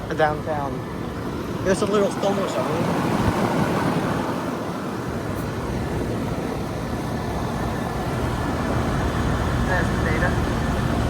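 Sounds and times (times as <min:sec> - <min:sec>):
air conditioner units running: 0:00.0 - 0:11.0.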